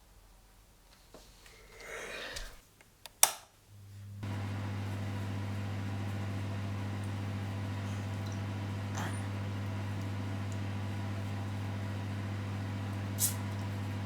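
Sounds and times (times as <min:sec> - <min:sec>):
sharp click: 0:03.0 - 0:03.5
electric appliance humming: 0:03.7 - 0:14.0.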